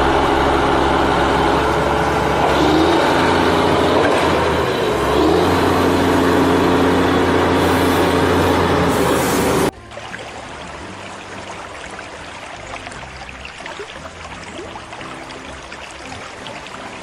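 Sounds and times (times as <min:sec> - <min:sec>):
vehicle engine running: 0:00.0 - 0:09.7.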